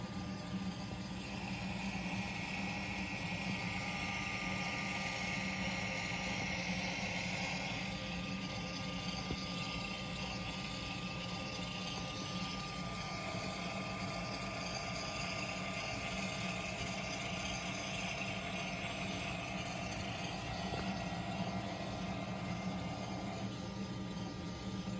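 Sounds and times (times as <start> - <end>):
model train idling hiss and hum: 0.0 - 24.9
thin high whine: 0.0 - 24.9.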